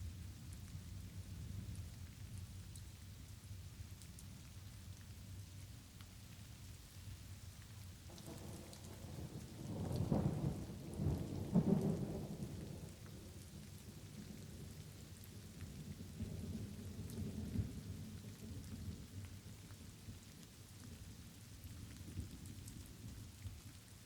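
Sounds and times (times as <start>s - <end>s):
light rain falling: 0.0s - 24.0s
thunder rumbling: 8.1s - 14.7s.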